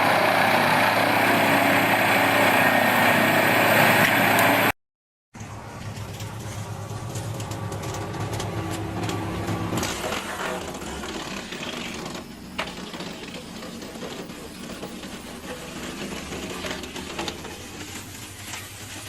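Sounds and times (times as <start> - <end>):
log splitter mechanical rattle: 5.4 - 19.0.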